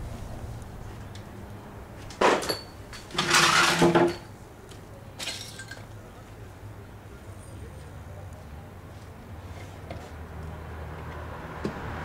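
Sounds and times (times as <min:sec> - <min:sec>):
metal objects clattering: 0:02.1 - 0:04.3.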